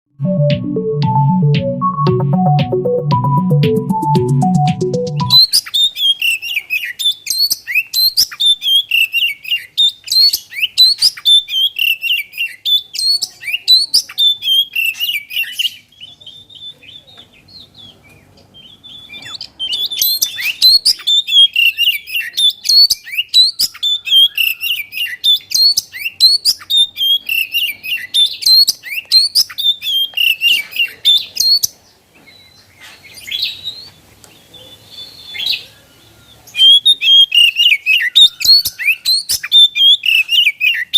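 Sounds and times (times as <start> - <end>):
bird singing whistled notes: 3.8 - 31.7, 34.7 - 40.9.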